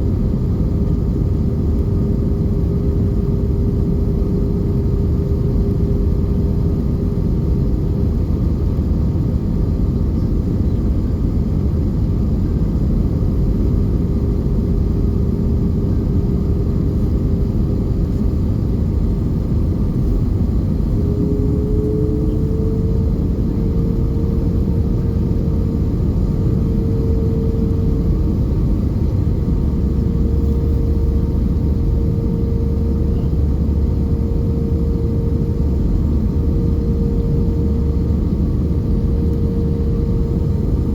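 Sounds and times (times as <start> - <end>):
jet engines rumbling: 0.0 - 40.9
engine hum: 14.3 - 40.9.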